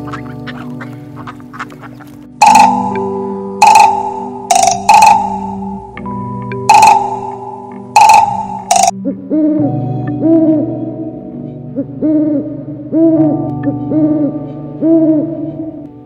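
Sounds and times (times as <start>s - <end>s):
owl hooting: 0.0s - 5.9s, 6.7s - 9.6s.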